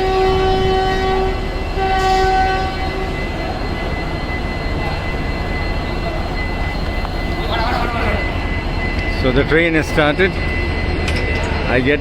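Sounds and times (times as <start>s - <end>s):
locomotive horn blasts: 0.0s - 3.6s.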